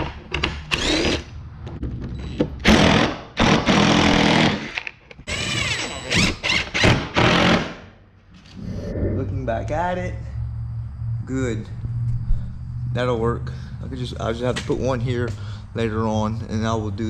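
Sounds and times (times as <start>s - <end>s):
cordless drill driving screws: 0.7s - 1.2s, 4.0s - 7.6s.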